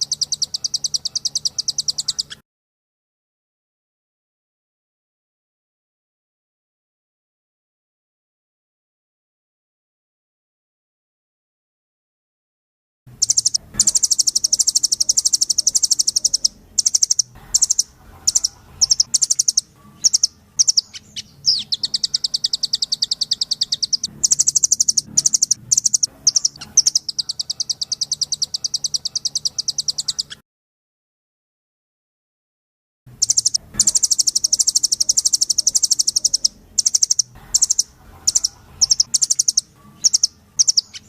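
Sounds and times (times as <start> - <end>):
bird singing rapid trills: 0.0 - 2.4, 13.2 - 30.4, 33.1 - 41.0.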